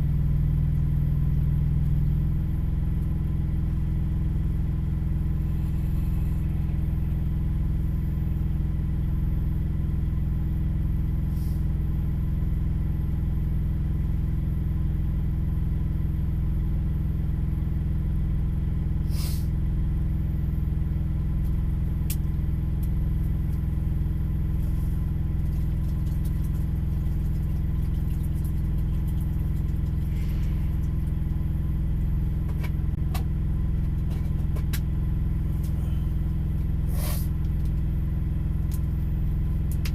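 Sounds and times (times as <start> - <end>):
large engine idling: 0.0 - 39.9.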